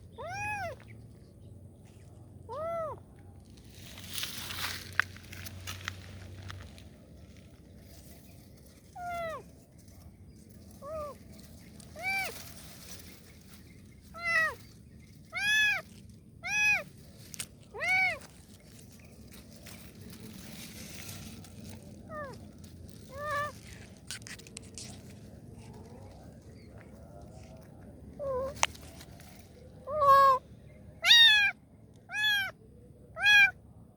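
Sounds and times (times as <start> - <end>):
kitten meowing: 0.2 - 0.8, 2.5 - 3.0, 14.1 - 14.6, 15.3 - 16.9, 17.7 - 18.3, 28.2 - 28.6, 29.8 - 30.4, 31.0 - 32.6, 33.2 - 33.6.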